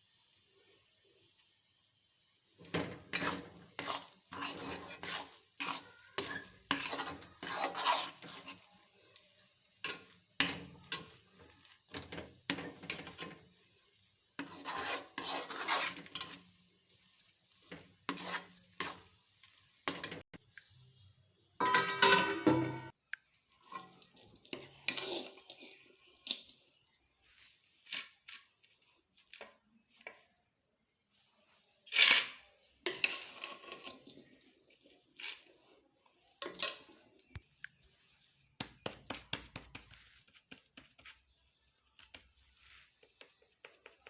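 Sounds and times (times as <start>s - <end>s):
spoon scraping cooking pan: 2.6s - 20.7s, 21.6s - 23.0s, 23.6s - 30.2s, 31.9s - 38.3s.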